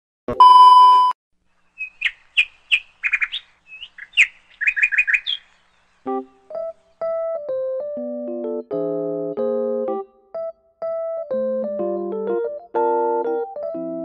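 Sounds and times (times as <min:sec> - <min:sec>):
test-tone beep: 0:00.3 - 0:01.2
small bird chirping: 0:01.5 - 0:07.1.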